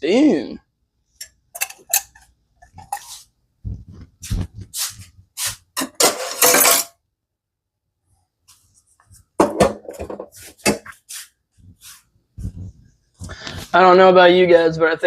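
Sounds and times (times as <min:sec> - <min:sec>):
dishes knocking and clinking: 0:01.5 - 0:03.1, 0:05.8 - 0:07.0, 0:09.4 - 0:11.0
rustling scrape: 0:02.8 - 0:06.8.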